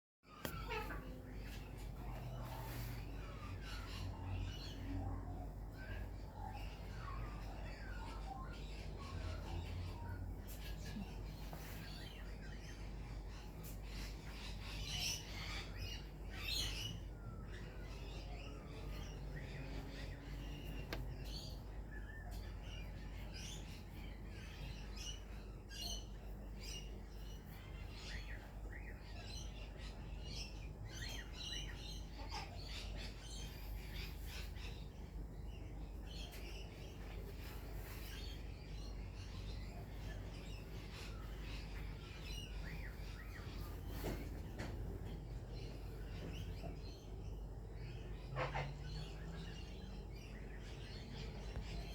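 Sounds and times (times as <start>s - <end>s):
birds chirping: 0.3s - 51.9s
low background hum: 0.3s - 51.9s.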